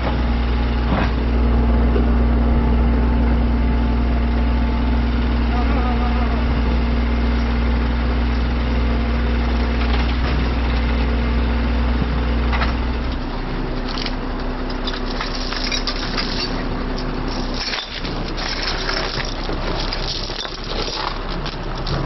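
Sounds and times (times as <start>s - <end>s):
truck engine idling: 0.0s - 22.0s
steady hum: 0.1s - 13.1s.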